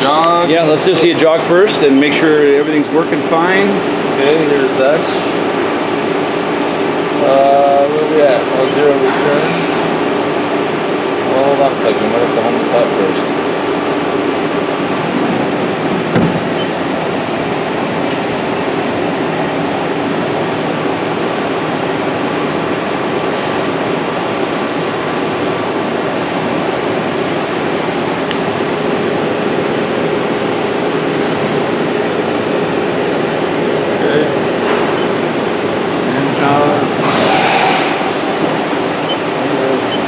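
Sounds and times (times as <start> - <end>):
lathe machinery humming: 0.0 - 40.0
faint high whine: 36.2 - 40.0.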